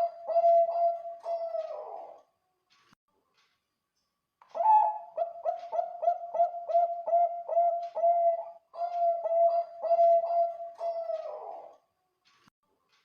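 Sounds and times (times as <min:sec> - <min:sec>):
zebra dove cooing: 0:00.0 - 0:02.2, 0:04.5 - 0:11.8.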